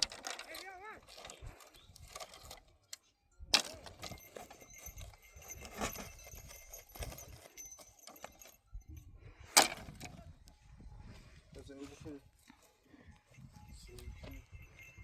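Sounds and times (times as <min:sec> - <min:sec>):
horse hooves clip-clopping: 0:04.1 - 0:08.6.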